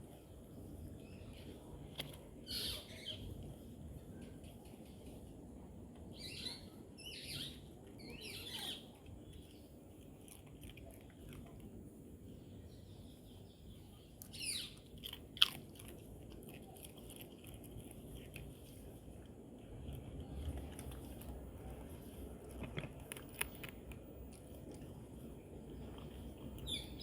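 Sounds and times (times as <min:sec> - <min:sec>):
dog chewing and crunching food: 0:07.8 - 0:12.1, 0:14.2 - 0:27.0.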